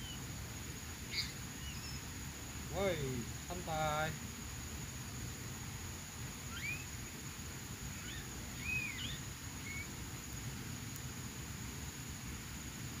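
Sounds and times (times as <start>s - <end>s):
bird whistled calls: 0.0s - 0.2s, 1.1s - 2.1s, 6.5s - 6.9s, 8.0s - 9.9s
outdoor background: 0.0s - 13.0s.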